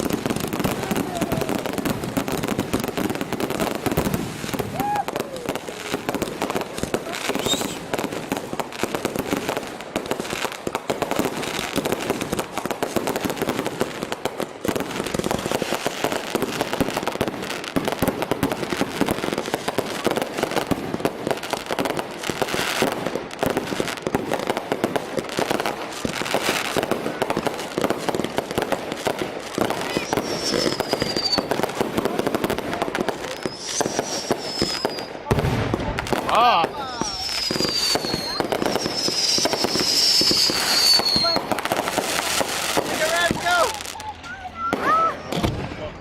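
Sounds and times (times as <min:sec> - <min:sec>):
fireworks crackling and popping: 0:00.0 - 0:46.0
firework rising whistle: 0:04.5 - 0:05.8, 0:07.3 - 0:07.9, 0:29.7 - 0:31.6, 0:33.2 - 0:35.3, 0:36.9 - 0:41.6.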